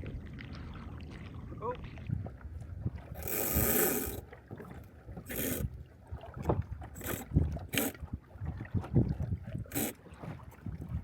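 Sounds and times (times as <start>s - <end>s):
water washing against hull: 0.0s - 11.0s
wind rumble on microphone: 0.0s - 11.0s.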